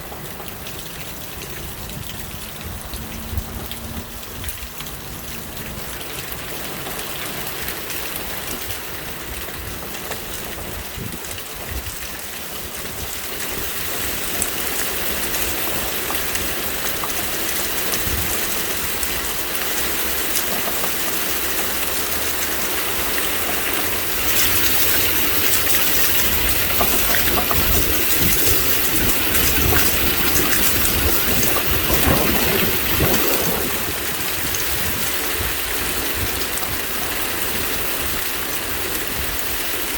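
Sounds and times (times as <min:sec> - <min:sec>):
heavy rain pouring: 0:00.0 - 0:39.9
wind buffeting microphone: 0:01.3 - 0:06.9, 0:23.2 - 0:39.9.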